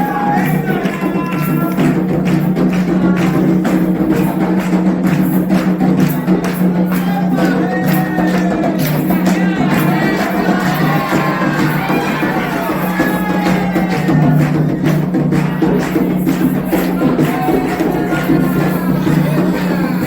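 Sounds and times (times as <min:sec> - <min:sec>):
drums and percussion: 0:00.0 - 0:20.0
voices singing: 0:00.0 - 0:20.0.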